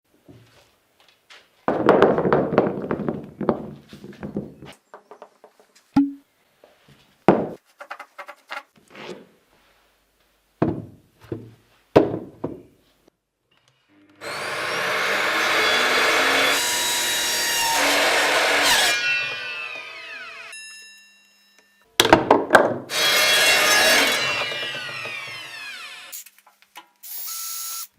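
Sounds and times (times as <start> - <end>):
power tool cutting wood: 14.0 - 20.6, 22.9 - 26.2, 27.0 - 27.9
wood and tools knocking: 22.0 - 26.0.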